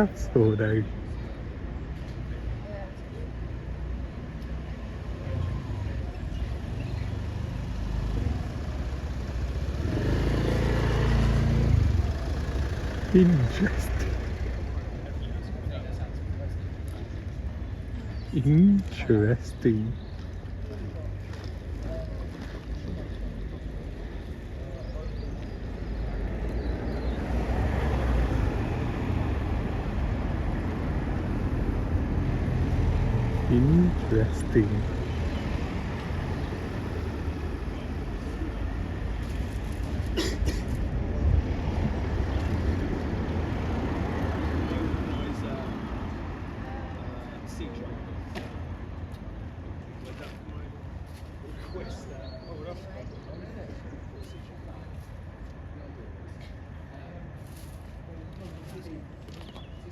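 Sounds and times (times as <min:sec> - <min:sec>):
rumble of road vehicles: 0:00.0 - 0:59.9
car engine running: 0:09.6 - 0:15.4.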